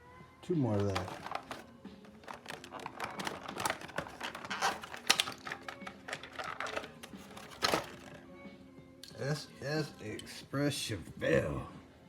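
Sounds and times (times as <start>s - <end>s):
toy cars clicking and tapping: 0.8s - 8.1s.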